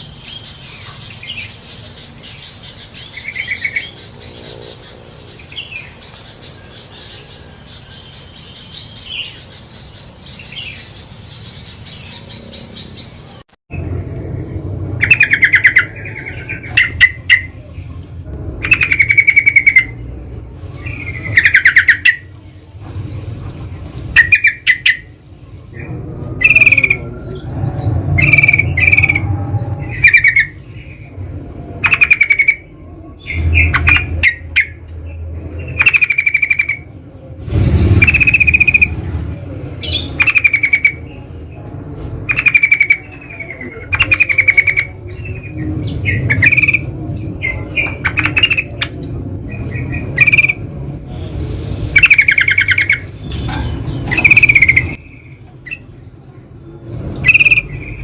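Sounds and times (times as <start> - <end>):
low background rumble: 0.0 - 58.0
bulbuls chattering: 14.2 - 58.0.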